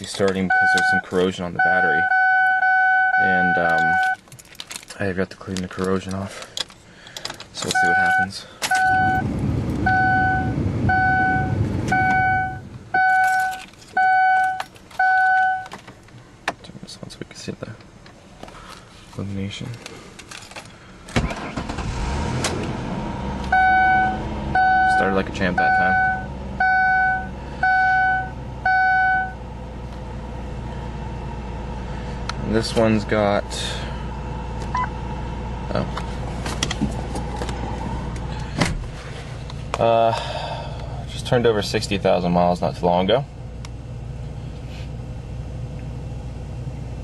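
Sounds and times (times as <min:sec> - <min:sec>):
car warning chime: 0:00.4 - 0:04.2, 0:07.6 - 0:09.3, 0:09.9 - 0:15.8, 0:23.5 - 0:29.4, 0:34.7 - 0:35.0
low rumble: 0:08.9 - 0:13.5, 0:29.4 - 0:39.8
car engine idling: 0:17.6 - 0:47.0.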